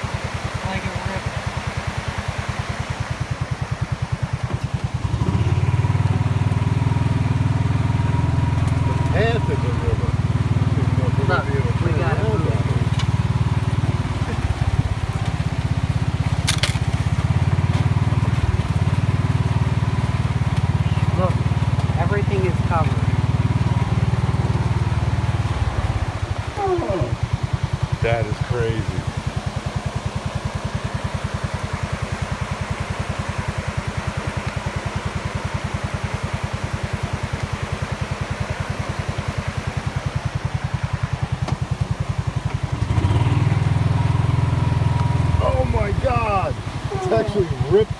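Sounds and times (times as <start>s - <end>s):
creek rushing: 0.0s - 47.9s
vehicle engine idling: 0.0s - 47.9s.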